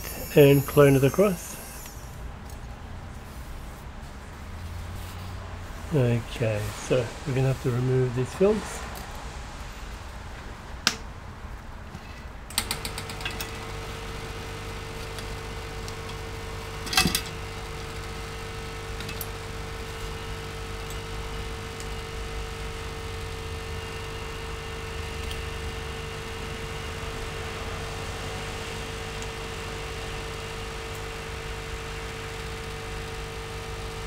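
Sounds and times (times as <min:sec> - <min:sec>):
small electric motor humming: 0:00.0 - 0:02.6, 0:12.8 - 0:34.0.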